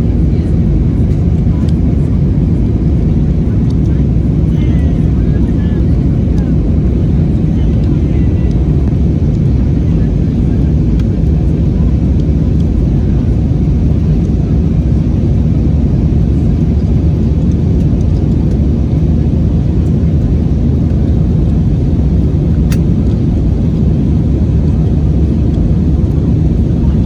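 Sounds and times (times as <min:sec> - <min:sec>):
aircraft engines rumbling: 0:00.0 - 0:27.0
brief click: 0:22.7 - 0:22.9.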